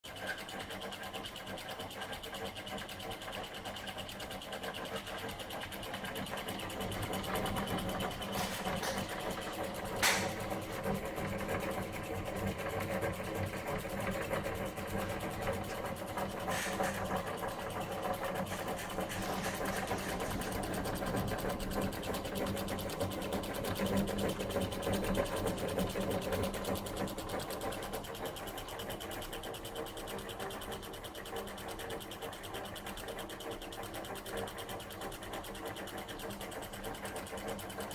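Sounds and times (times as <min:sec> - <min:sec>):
small engine whirring and clattering: 0:00.0 - 0:37.9
sharp click: 0:09.9 - 0:10.5.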